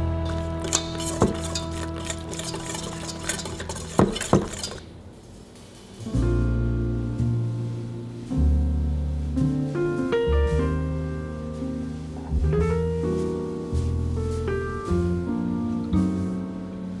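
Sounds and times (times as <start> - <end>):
background music: 0.0 - 3.4
piano and bass notes: 0.0 - 5.0, 6.0 - 17.0
utensil clinking on dishware: 0.3 - 4.8.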